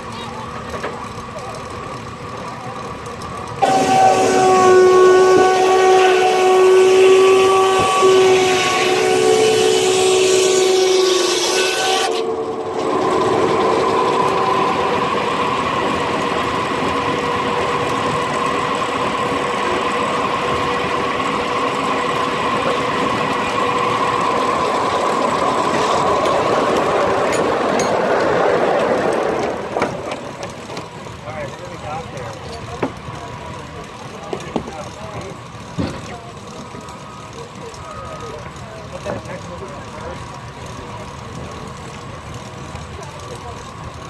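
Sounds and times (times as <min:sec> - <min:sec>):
steam sawmill whining: 0:00.0 - 0:44.0
steam whistle chord: 0:03.6 - 0:27.9.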